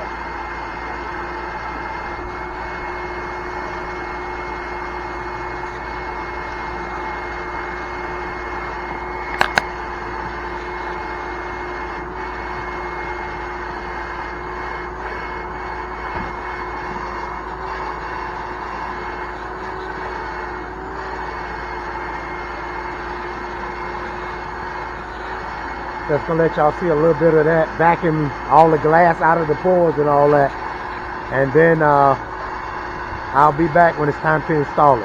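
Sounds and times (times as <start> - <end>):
sharp clicks: 9.3 - 9.7
shop vacuum whining: 21.3 - 35.0.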